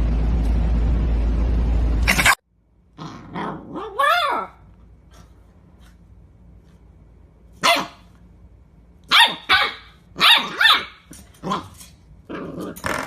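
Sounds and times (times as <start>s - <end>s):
dog barking: 7.6s - 8.1s, 9.1s - 11.7s.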